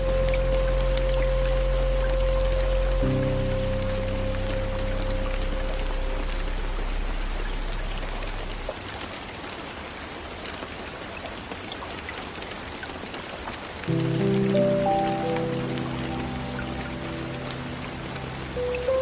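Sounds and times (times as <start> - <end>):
soft music chord: 0.0 - 8.7, 13.9 - 19.0
rain on a window: 0.0 - 19.0.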